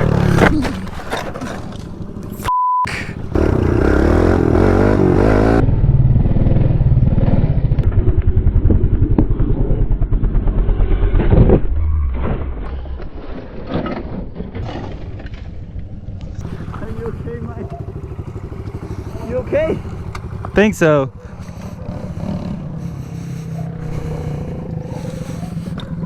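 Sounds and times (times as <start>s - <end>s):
pit bike engine revving: 0.0s - 2.4s, 3.1s - 11.5s, 16.4s - 26.0s.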